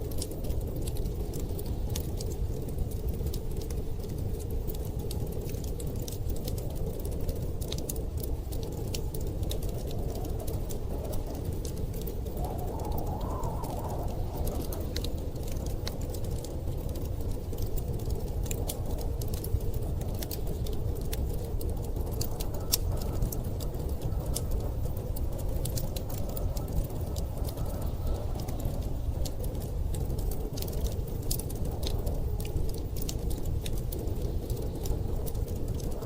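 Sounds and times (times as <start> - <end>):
wood fire crackling and popping: 0.0 - 36.0
storm wind rushing: 8.3 - 20.2.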